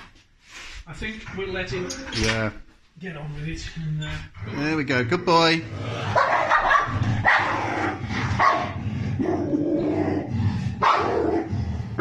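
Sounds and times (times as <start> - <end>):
dog barking and growling: 5.6 - 12.0.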